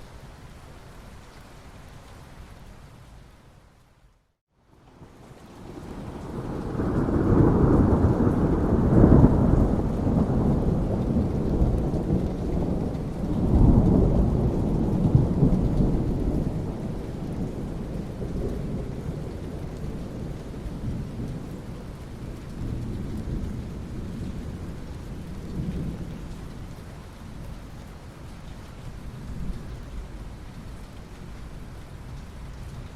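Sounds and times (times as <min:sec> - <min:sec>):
steady rain: 0:00.0 - 0:32.9
thunder rumbling: 0:05.6 - 0:26.5.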